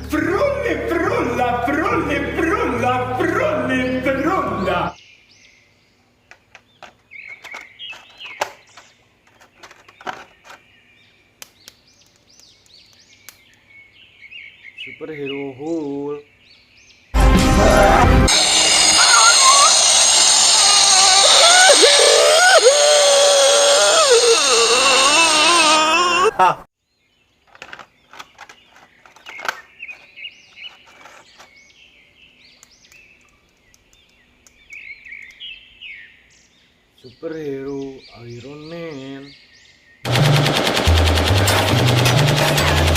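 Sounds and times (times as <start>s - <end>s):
small birds chirping: 4.9s - 17.2s, 26.8s - 40.1s.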